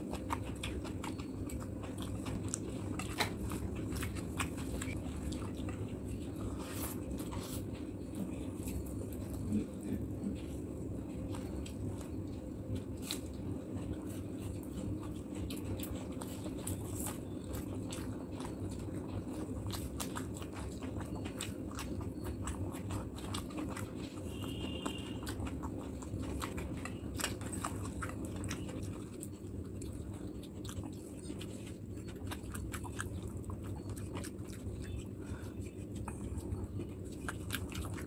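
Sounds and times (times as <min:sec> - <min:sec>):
wet chewing with mouth clicks: 0:00.0 - 0:38.0.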